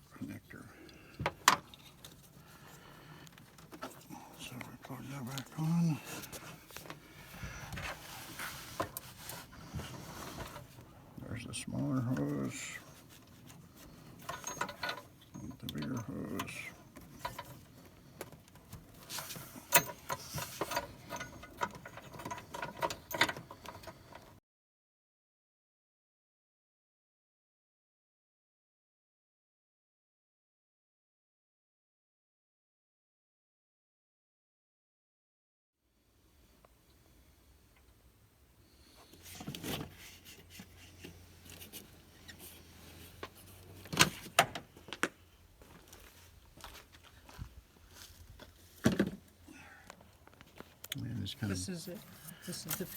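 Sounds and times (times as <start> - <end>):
small clicks and knocks of hands working: 13.3 - 24.4.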